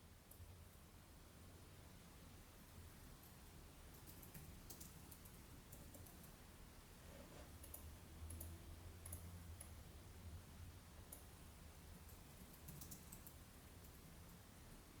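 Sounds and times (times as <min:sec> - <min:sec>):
low room hum: 0:00.0 - 0:15.0
faint irregular clicks: 0:00.2 - 0:00.9, 0:03.2 - 0:06.4, 0:07.4 - 0:09.8, 0:11.0 - 0:14.8.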